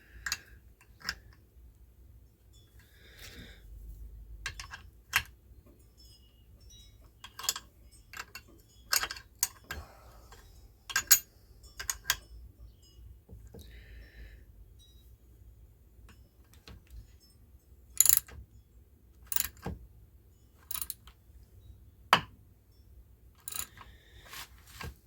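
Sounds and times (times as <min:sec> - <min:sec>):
hand tools clicking on metal: 0:08.2 - 0:12.3, 0:23.4 - 0:24.0.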